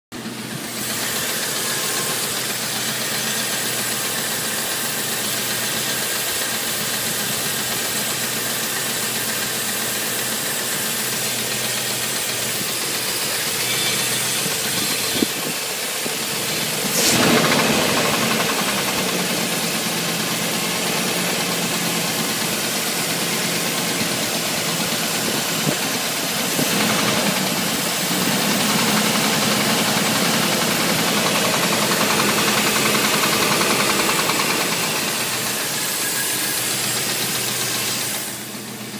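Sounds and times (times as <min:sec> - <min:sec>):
car engine knocking: 0:00.1 - 0:38.9
engine revving: 0:11.4 - 0:38.8.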